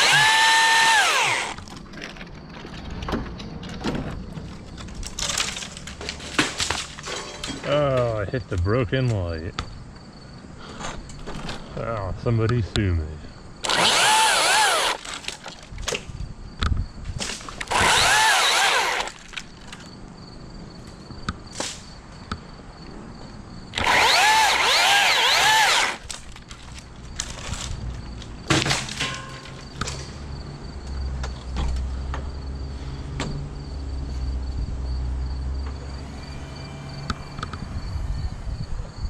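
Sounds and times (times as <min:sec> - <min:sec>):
chainsaw cutting wood: 0:00.0 - 0:01.7, 0:13.6 - 0:15.4, 0:17.5 - 0:19.4, 0:23.8 - 0:26.2.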